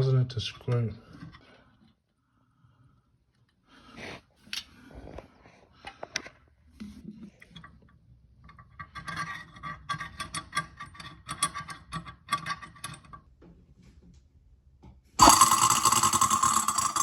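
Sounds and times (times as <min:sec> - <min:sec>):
disposal motor running: 0:15.2 - 0:17.0
garbage disposal scraping metallically: 0:15.2 - 0:17.0.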